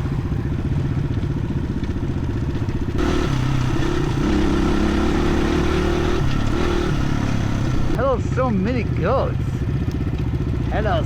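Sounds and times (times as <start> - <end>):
dirt bike engine running: 0.1 - 8.0.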